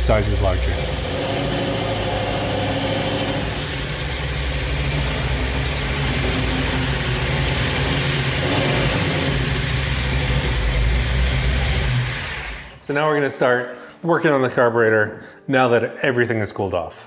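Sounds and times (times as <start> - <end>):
car engine idling rumble: 1.8 - 12.7.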